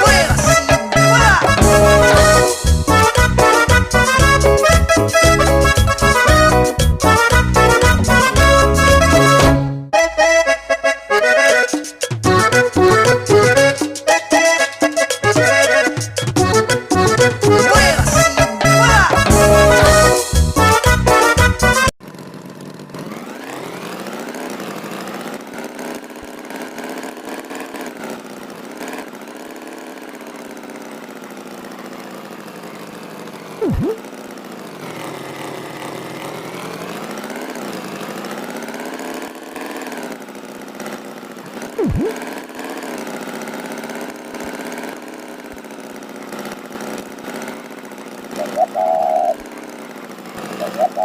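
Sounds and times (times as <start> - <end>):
tractor engine revving: 0.0 - 51.0
loud swooping sound: 33.6 - 34.0, 41.8 - 42.2.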